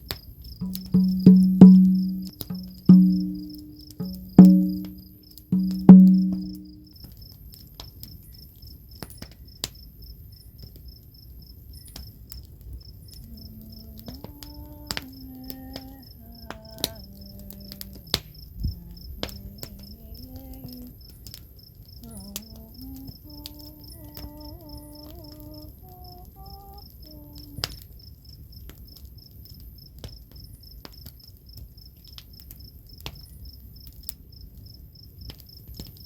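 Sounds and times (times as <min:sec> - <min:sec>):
crickets chirping: 0:00.0 - 0:36.0
woman humming a melody: 0:00.6 - 0:06.9, 0:13.2 - 0:21.1, 0:22.0 - 0:27.8.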